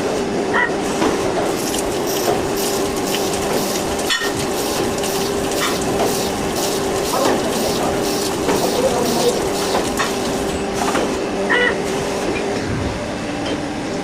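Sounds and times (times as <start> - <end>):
lathe machine humming: 1.4 - 10.8.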